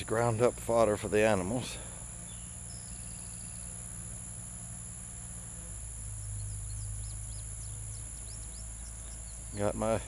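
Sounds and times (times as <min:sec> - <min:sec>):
crickets chirping: 0:00.0 - 0:10.0
low steady hum: 0:00.0 - 0:10.0
bird chirps: 0:02.2 - 0:03.9, 0:05.6 - 0:10.0.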